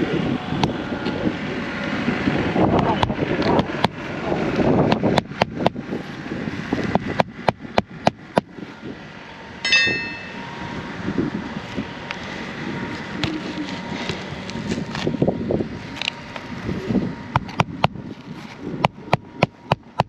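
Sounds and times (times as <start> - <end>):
wind on microphone: 0.0 - 19.7
short metallic ring: 9.6 - 10.5
hammer striking roofing nails: 18.8 - 20.0.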